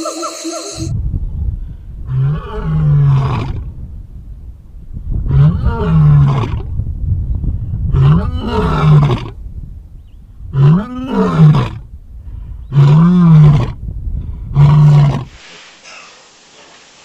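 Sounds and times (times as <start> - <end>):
low rumble: 0.6 - 15.4
large animal roaring: 2.0 - 3.7, 5.2 - 6.8, 7.9 - 9.4, 10.5 - 11.8, 12.7 - 13.8, 14.5 - 15.3.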